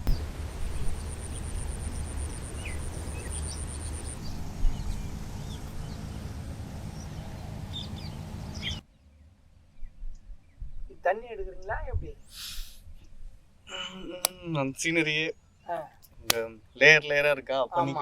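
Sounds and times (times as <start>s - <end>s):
low outdoor rumble: 0.0s - 13.4s.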